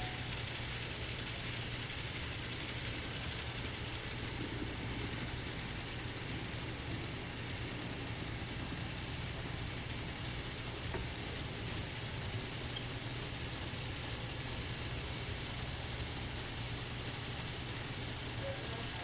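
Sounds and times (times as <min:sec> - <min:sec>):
model locomotives humming: 0:00.0 - 0:00.8
hiss: 0:00.0 - 0:19.0.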